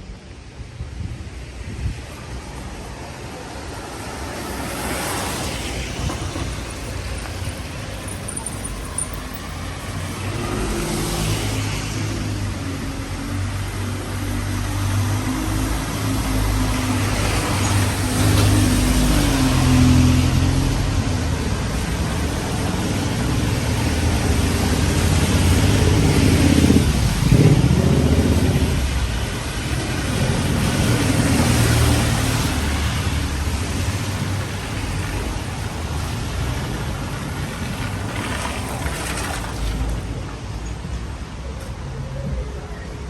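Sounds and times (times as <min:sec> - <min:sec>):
rain hiss on wet road: 0:14.7 - 0:40.2.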